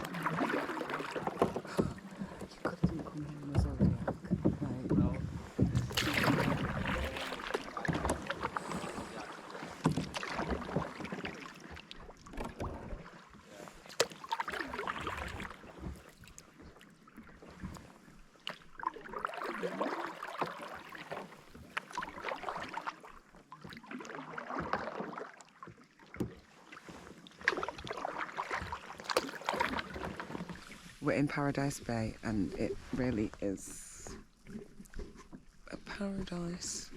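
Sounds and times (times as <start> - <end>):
kayak paddles splashing in water: 0.0 - 36.9.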